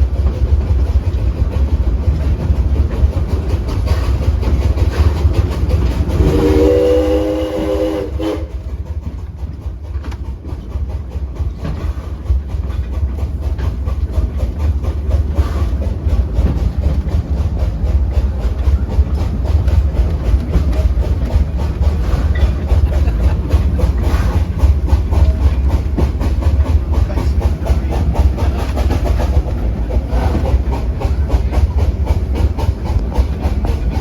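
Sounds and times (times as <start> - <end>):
steam locomotive chugging: 0.0 - 34.0
steam whistle: 6.2 - 8.6.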